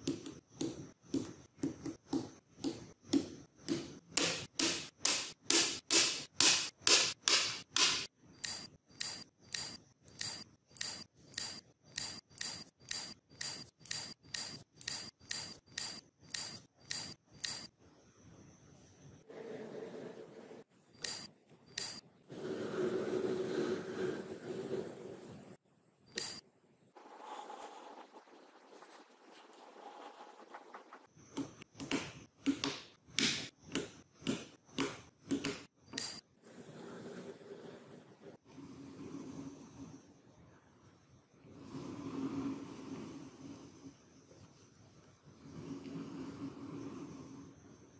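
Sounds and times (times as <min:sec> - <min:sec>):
magnetic balls clicking together: 0:00.0 - 0:17.7
sharp ringing clicks: 0:08.4 - 0:17.7, 0:21.0 - 0:22.1, 0:26.1 - 0:26.4.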